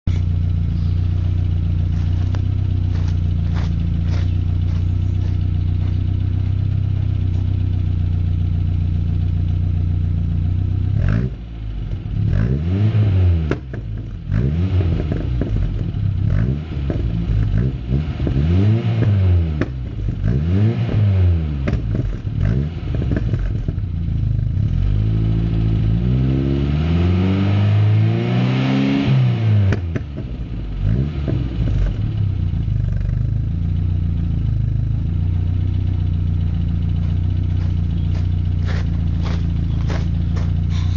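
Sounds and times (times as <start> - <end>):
car engine idling and revving: 0.0 - 40.9
exhaust pops: 13.4 - 24.0, 29.6 - 33.5.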